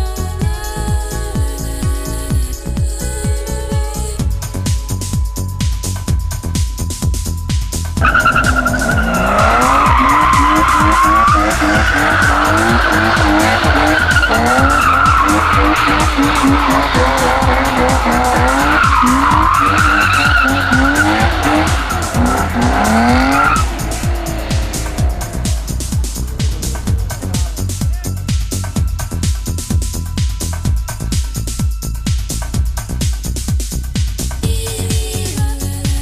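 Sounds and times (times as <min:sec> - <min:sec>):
music with steady beat: 0:00.0 - 0:36.0
car tires squealing: 0:08.0 - 0:30.4.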